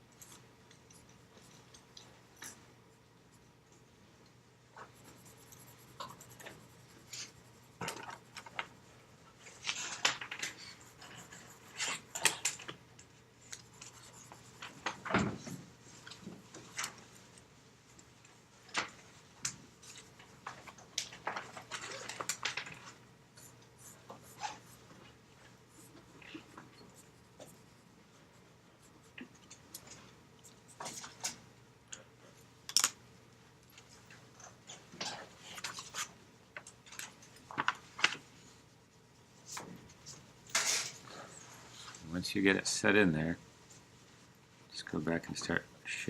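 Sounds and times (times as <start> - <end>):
pencil scratching on paper: 4.8 - 8.6, 10.5 - 12.4, 13.5 - 15.0, 23.4 - 24.9.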